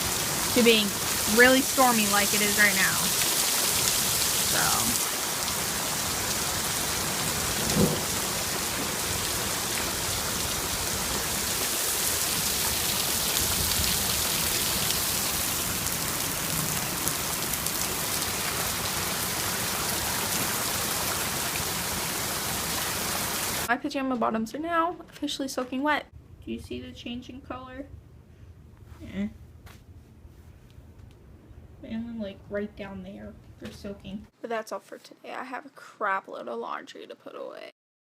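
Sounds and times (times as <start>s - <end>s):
heavy rain falling: 0.0s - 23.7s.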